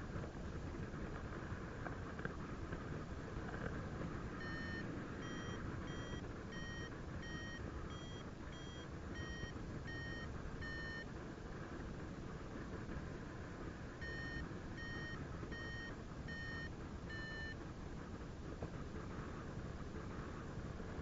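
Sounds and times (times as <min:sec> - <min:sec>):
variometer beeping: 0:04.3 - 0:11.1, 0:14.0 - 0:17.6.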